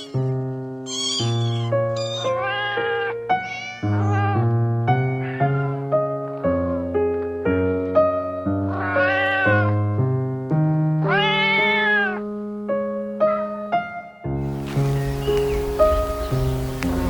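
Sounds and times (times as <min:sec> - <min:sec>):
cat meowing: 0:00.0 - 0:06.1, 0:08.2 - 0:10.0, 0:11.0 - 0:12.2
piano music: 0:00.0 - 0:17.0.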